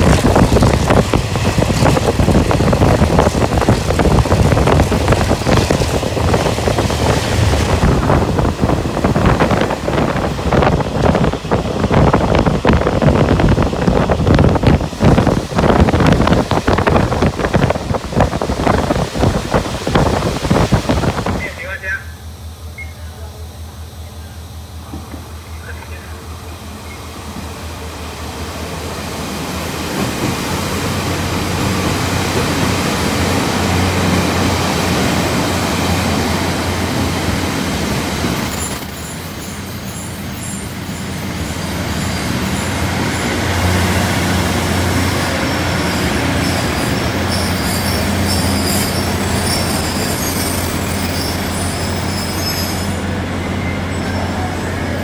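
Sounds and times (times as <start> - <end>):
train wheels running on rails: 0.0 - 55.0
high wheel squeal: 38.4 - 43.7, 45.0 - 55.0.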